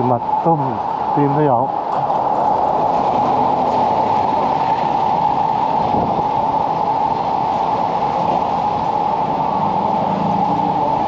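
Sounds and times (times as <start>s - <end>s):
town street noise: 0.0s - 11.0s.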